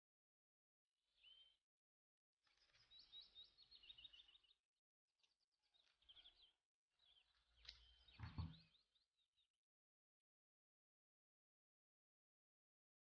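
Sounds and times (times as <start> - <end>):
small birds chirping: 1.1 - 1.7, 2.4 - 9.6.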